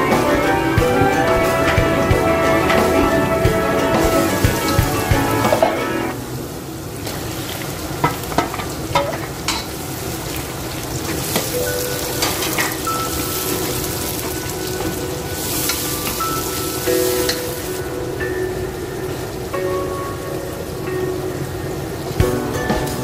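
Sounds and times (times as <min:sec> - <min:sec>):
onions sizzling in oil: 0:06.4 - 0:17.9.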